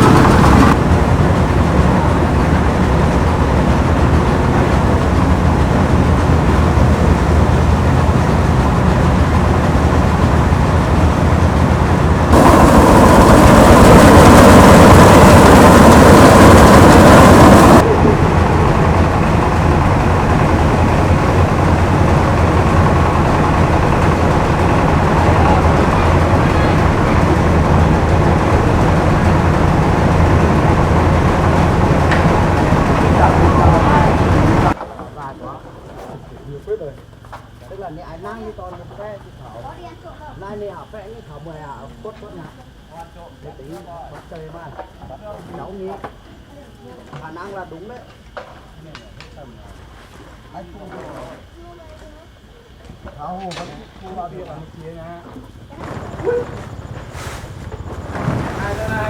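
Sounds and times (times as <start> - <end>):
harvesting machine engine running: 0.0 - 34.8, 55.9 - 59.0
loud rushing noise: 0.0 - 34.8, 58.0 - 59.0.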